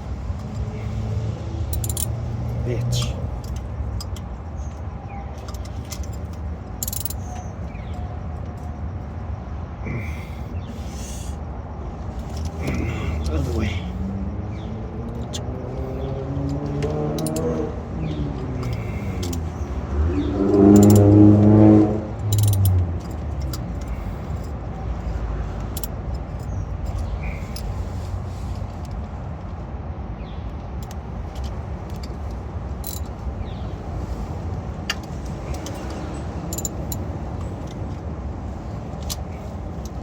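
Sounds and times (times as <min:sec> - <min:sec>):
metallic clicks of filter wrench: 0:01.7 - 0:02.2, 0:05.4 - 0:07.3, 0:16.5 - 0:17.6, 0:18.6 - 0:19.5, 0:20.4 - 0:21.5, 0:22.2 - 0:24.0, 0:32.8 - 0:33.1, 0:34.9 - 0:37.1
man straining: 0:09.8 - 0:11.3, 0:12.5 - 0:13.9.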